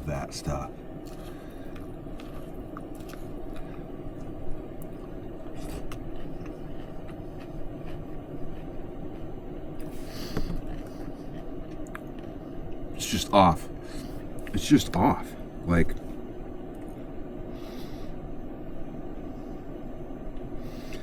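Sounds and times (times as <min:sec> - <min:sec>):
low background noise: 0:00.0 - 0:21.0
person chewing cereal: 0:01.0 - 0:12.8.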